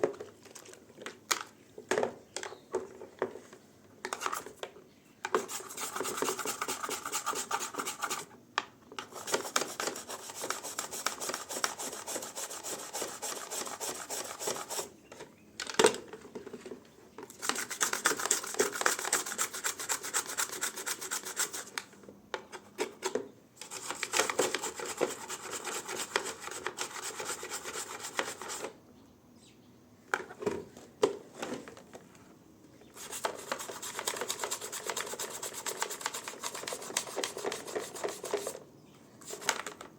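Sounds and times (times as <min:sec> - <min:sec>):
hand scrubbing: 0:05.4 - 0:08.3, 0:09.1 - 0:14.9, 0:33.0 - 0:38.6.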